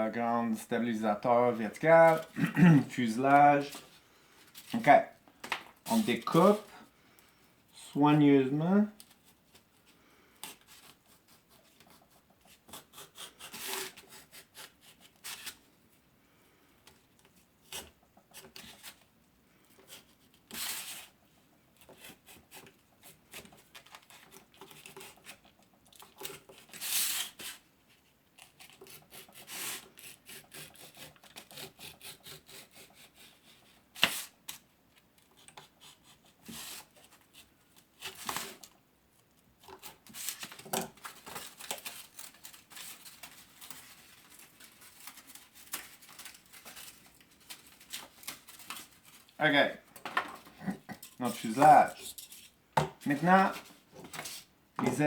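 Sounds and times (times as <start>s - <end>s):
knife cutting styrofoam: 10.4s - 15.7s, 19.8s - 21.1s, 21.8s - 25.4s, 26.0s - 27.6s, 28.4s - 34.6s, 35.4s - 38.7s, 39.7s - 49.2s.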